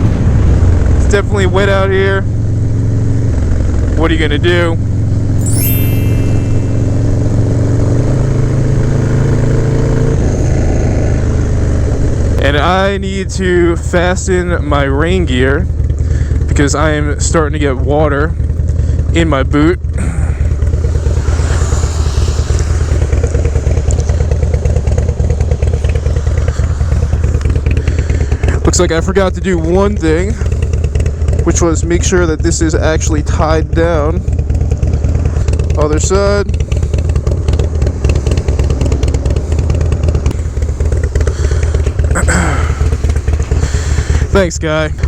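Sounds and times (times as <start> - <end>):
motorcycle engine idling: 12.1 - 45.0.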